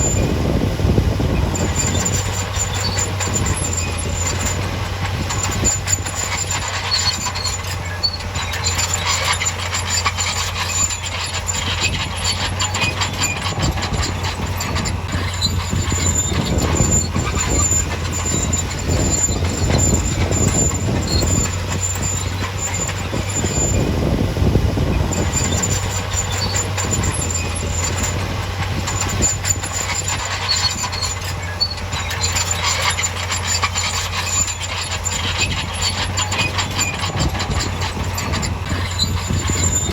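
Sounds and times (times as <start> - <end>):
construction machine engine drone: 0.0 - 39.9
high squeal: 0.0 - 39.9
metallic clanking: 1.2 - 39.9.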